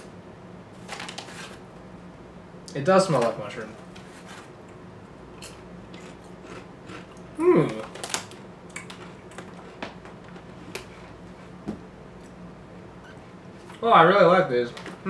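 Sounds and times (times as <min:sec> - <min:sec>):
person crunching chips: 0:05.4 - 0:09.8
short hummed voice: 0:07.4 - 0:08.0.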